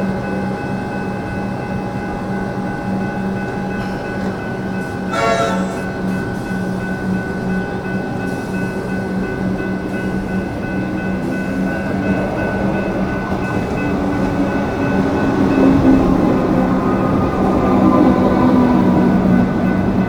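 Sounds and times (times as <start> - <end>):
electric train rail noise: 0.0 - 20.0
train motor tone: 3.5 - 6.8.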